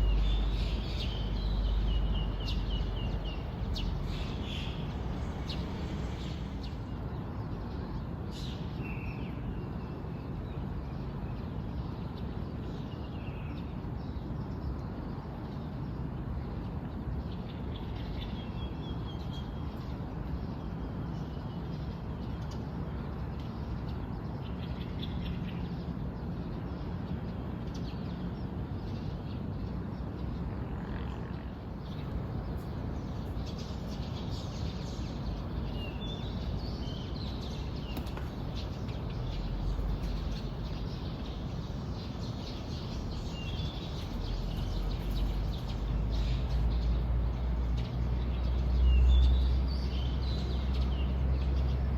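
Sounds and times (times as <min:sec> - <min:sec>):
birds chirping and trilling: 0:00.0 - 0:07.0, 0:31.8 - 0:51.9.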